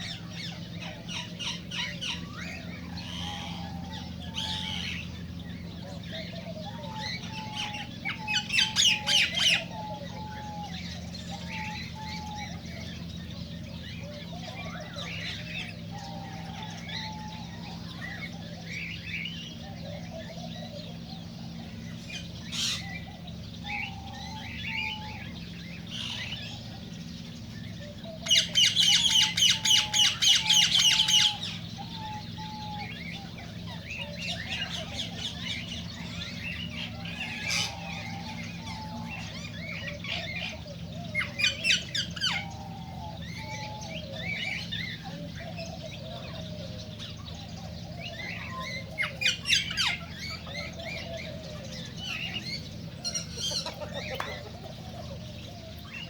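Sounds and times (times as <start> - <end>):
cockatiels chirping and whistling: 48.0 - 55.0.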